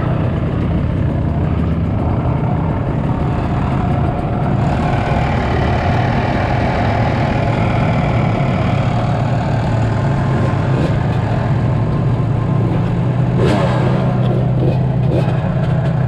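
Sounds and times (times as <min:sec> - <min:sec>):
dirt bike engine idling: 0:00.0 - 0:16.0.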